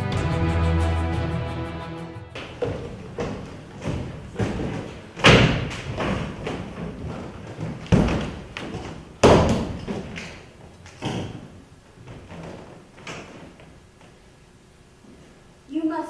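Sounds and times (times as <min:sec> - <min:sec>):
loud reverberant thuds: 0:02.4 - 0:13.9.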